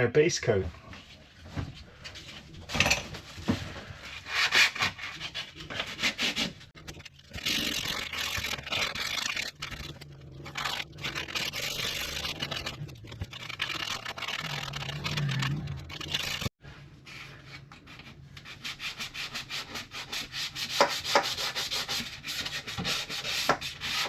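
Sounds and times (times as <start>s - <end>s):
sandpaper rubbing: 4.2s - 6.6s, 7.3s - 16.5s, 18.4s - 24.0s.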